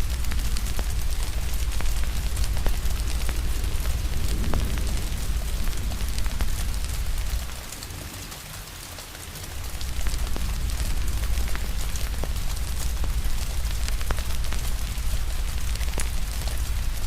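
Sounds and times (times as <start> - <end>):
low rumble: 0.0 - 8.2, 9.5 - 17.0
steady rain: 0.0 - 17.0
wood fire crackling: 0.0 - 17.0.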